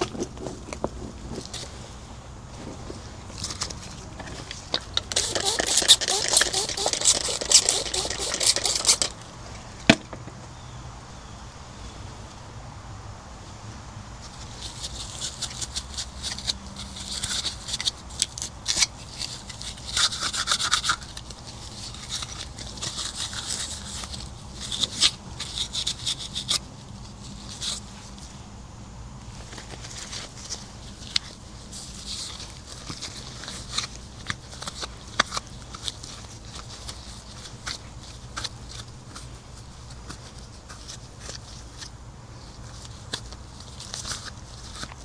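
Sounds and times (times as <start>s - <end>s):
scrubbing a hard surface: 5.1s - 9.1s.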